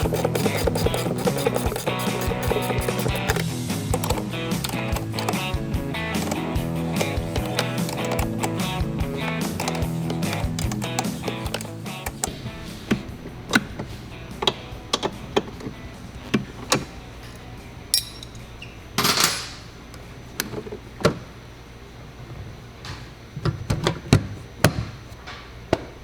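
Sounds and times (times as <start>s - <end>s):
metal hand tools clicking and knocking: 0.0s - 12.4s, 17.2s - 18.4s.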